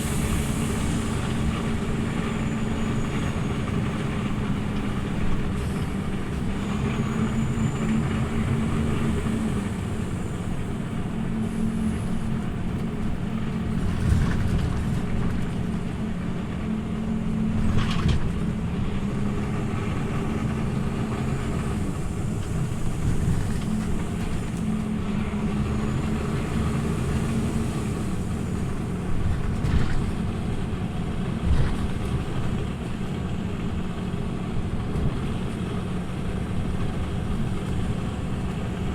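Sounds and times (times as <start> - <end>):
bus engine drone: 0.0 - 38.9
bus body knocks and rattles: 17.5 - 18.6.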